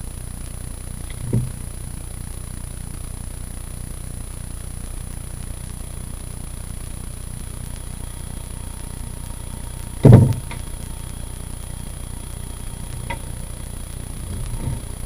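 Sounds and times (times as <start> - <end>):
steady low rumble: 0.0 - 15.0
heavy dull thump: 1.1 - 1.6, 10.0 - 10.7.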